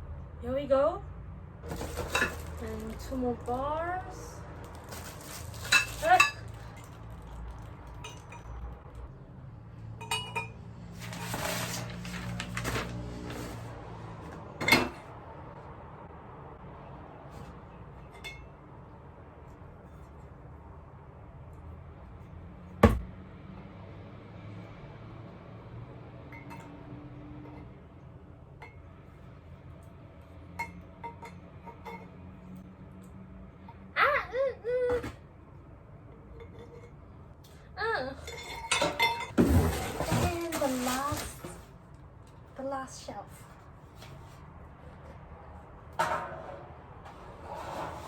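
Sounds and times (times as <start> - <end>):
shuffling handling noise: 1.6 - 8.1, 11.0 - 13.8, 39.4 - 41.8.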